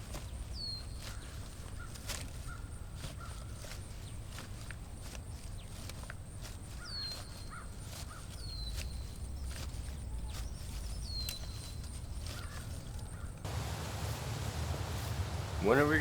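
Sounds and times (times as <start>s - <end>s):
low wind rumble: 13.5s - 16.0s.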